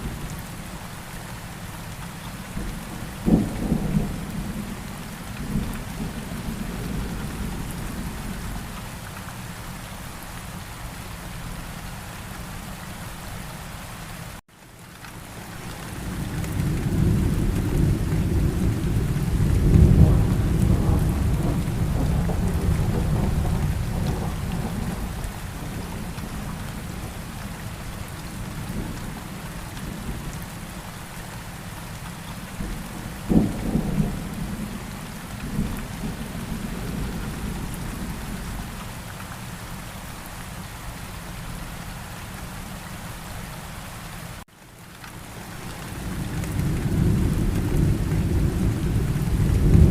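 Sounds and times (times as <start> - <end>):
steady rain: 0.0 - 49.9
low roll of thunder: 2.6 - 8.6, 16.1 - 27.2, 32.6 - 38.7, 46.1 - 49.9
sharp thunder clap: 46.8 - 49.9.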